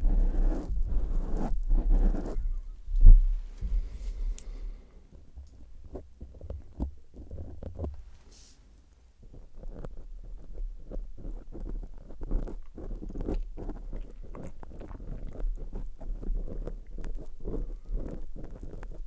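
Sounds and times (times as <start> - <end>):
low rumble: 0.0 - 4.8.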